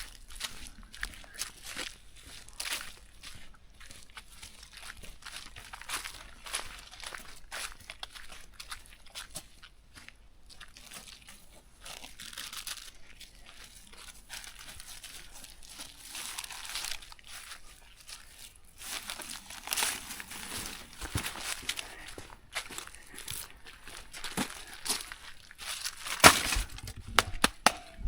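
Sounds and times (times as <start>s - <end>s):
plastic crinkling and rustling: 10.8s - 27.7s.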